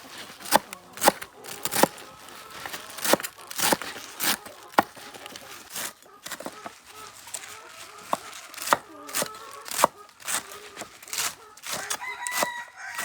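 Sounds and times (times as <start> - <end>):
knife chopping on cutting board: 8.1 - 10.5.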